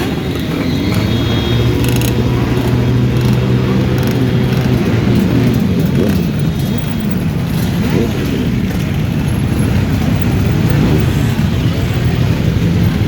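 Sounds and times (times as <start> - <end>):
motorcycle engines revving: 0.0 - 13.0.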